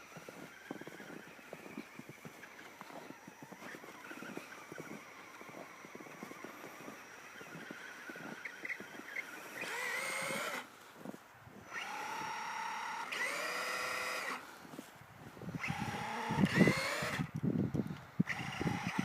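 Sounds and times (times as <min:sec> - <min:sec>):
electric motor whining: 0:00.0 - 0:10.7, 0:11.5 - 0:19.0
truck crunching through snow: 0:00.0 - 0:17.3, 0:18.2 - 0:19.0.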